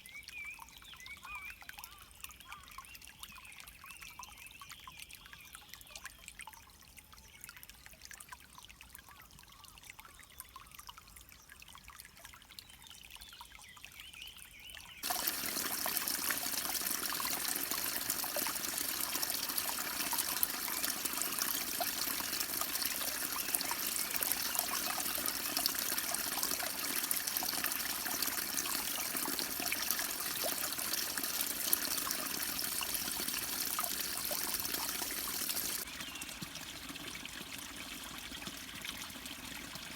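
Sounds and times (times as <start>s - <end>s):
river water flowing over rocks: 15.0s - 35.8s.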